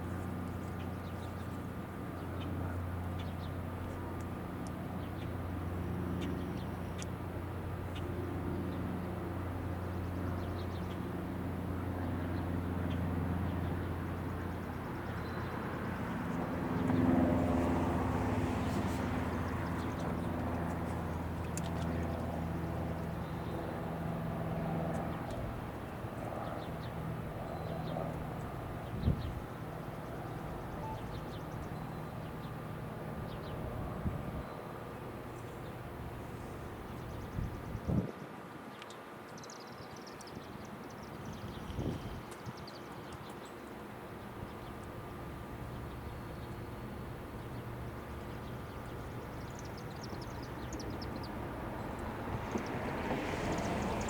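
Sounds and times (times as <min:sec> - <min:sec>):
road traffic hum: 0:00.0 - 0:54.0
vehicle passing: 0:15.1 - 0:21.5, 0:50.2 - 0:54.0.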